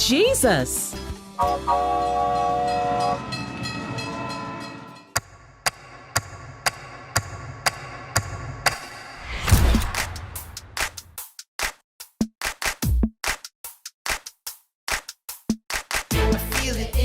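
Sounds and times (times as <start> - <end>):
train horn: 1.4 - 5.1
low rush: 9.0 - 11.1.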